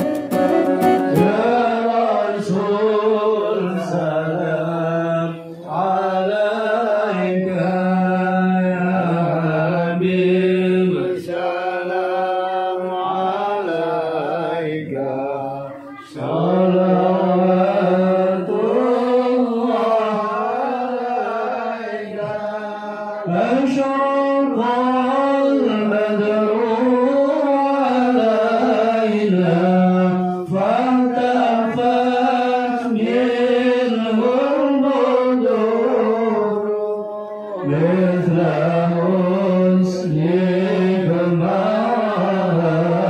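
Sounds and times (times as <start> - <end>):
musical accompaniment: 0.0 - 2.0
person singing devotional song: 0.0 - 43.0.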